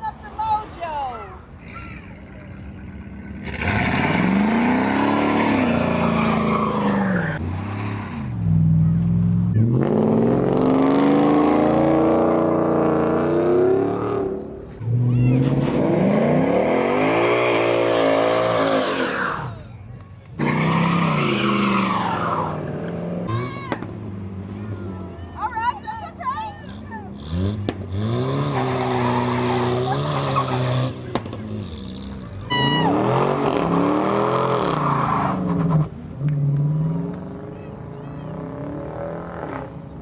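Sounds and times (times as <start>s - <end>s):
car engine revving hard: 1.6s - 19.1s, 27.1s - 35.9s.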